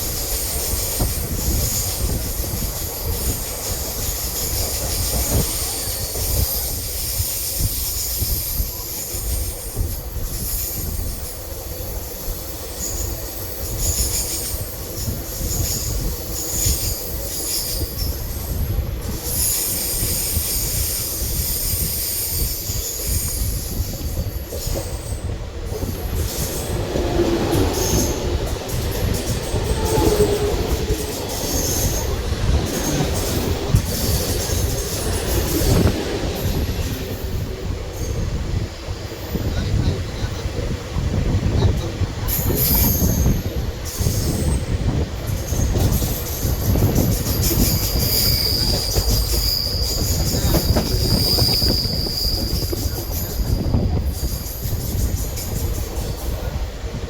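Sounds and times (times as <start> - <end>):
train rumbling on rails: 0.0 - 57.0
high-pitched wheel squeal: 25.9 - 35.9, 45.5 - 54.9.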